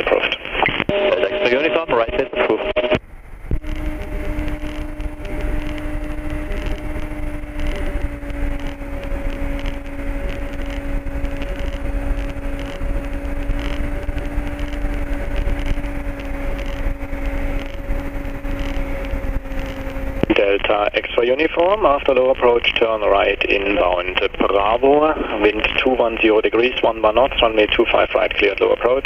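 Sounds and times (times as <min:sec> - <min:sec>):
aircraft engine and propeller drone: 0:00.0 - 0:29.0
two-tone hum: 0:00.0 - 0:29.0.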